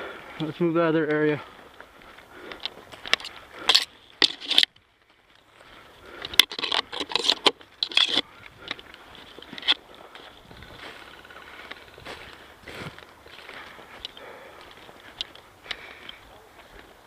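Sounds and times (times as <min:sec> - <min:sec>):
footsteps crunching through dry leaves: 0:07.6 - 0:17.0.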